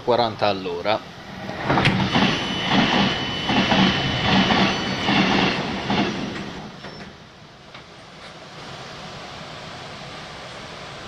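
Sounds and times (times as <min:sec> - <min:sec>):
passing train rush: 0:00.0 - 0:11.0
high whine: 0:00.6 - 0:07.5
train wheel clacks: 0:01.3 - 0:07.9.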